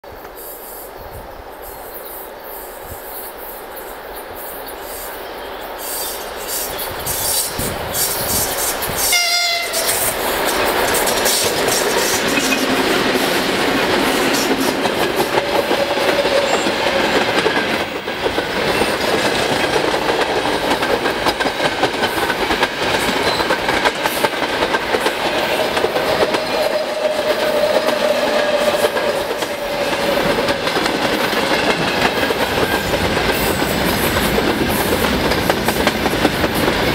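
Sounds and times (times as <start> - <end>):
diesel locomotive passing: 0.1 - 36.9
wheels clickety-clack over rails: 7.0 - 36.9
short horn blast: 9.1 - 10.1
ringing tone: 12.3 - 12.8.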